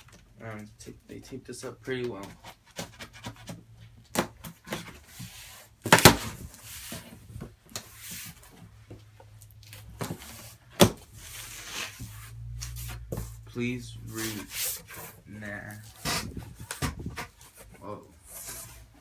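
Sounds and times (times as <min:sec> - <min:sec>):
cardboard box scraping and rustling: 0:04.5 - 0:08.7, 0:10.0 - 0:19.0
sharp knocks on cardboard box: 0:05.8 - 0:06.4.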